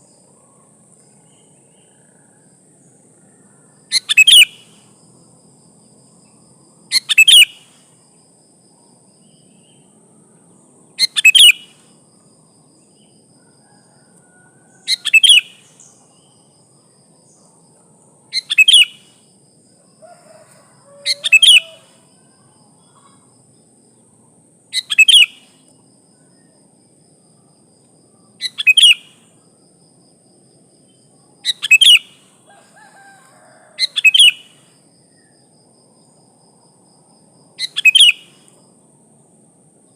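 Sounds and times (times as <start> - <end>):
bird double-note calls: 21.0 - 22.0.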